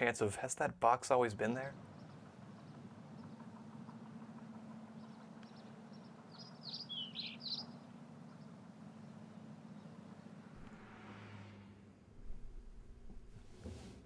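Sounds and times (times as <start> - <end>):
faint low hum: 0.5 - 14.0
bird chirping high notes: 5.0 - 9.9.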